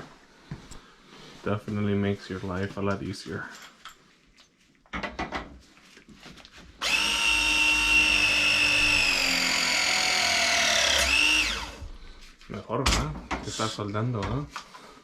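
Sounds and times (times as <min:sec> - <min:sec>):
press tool motor whining: 0:06.8 - 0:11.8.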